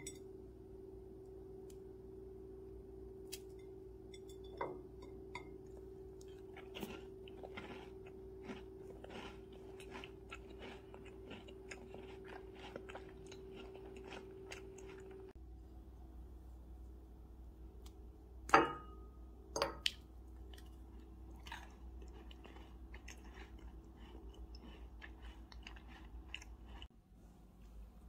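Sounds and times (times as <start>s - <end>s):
low hum: 0.0s - 9.1s
moist crumbly chewing: 5.7s - 15.4s, 19.9s - 26.9s
cookie crackling as bitten: 6.2s - 15.3s.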